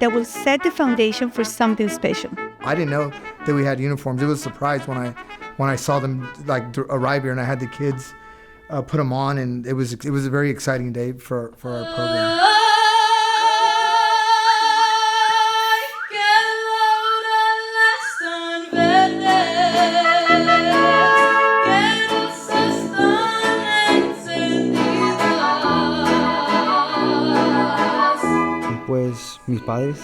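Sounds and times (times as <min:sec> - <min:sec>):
mariachi band playing and singing: 0:18.7 - 0:30.0.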